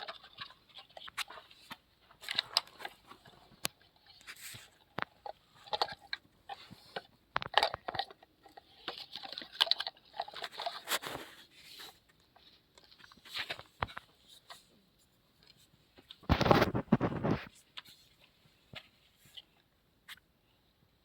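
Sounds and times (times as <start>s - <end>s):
plastic toys clattering: 0.0s - 14.7s.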